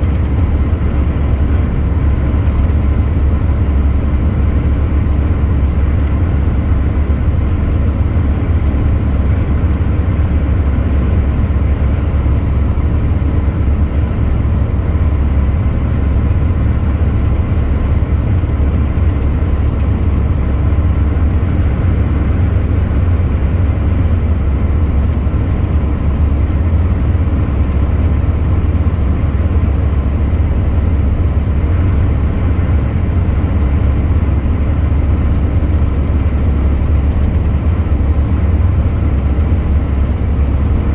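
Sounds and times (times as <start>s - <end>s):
truck engine and road noise: 0.0s - 40.9s.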